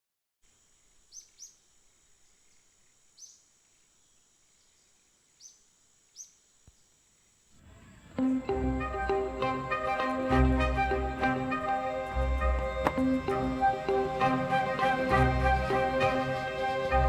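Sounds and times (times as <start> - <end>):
low hiss: 0.4 - 17.0
faint bird chirps: 0.5 - 8.5
steady high-pitched whine: 0.5 - 17.0
music: 8.2 - 17.0.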